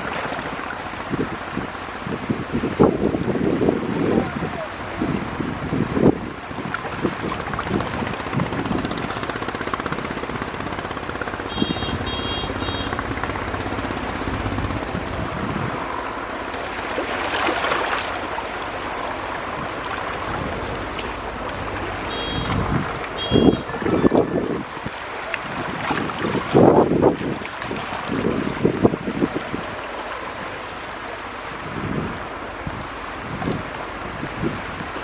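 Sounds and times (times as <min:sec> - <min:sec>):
wind noise: 0:00.0 - 0:30.7, 0:31.4 - 0:35.0
boat engine running: 0:00.0 - 0:35.0
rushing water: 0:00.0 - 0:35.0
short high beeps: 0:22.1 - 0:22.6, 0:23.2 - 0:23.8.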